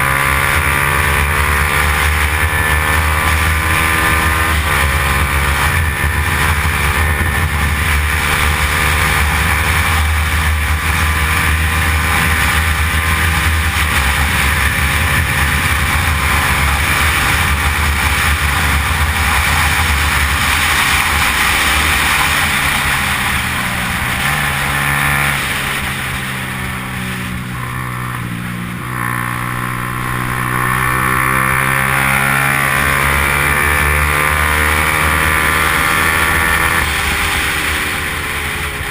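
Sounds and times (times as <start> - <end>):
motorcycle engine at high revs: 0.0 - 38.9.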